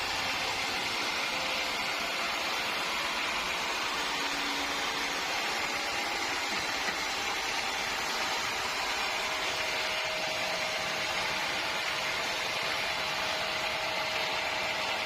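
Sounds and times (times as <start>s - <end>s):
sawmill machinery hissing: 0.0s - 15.0s.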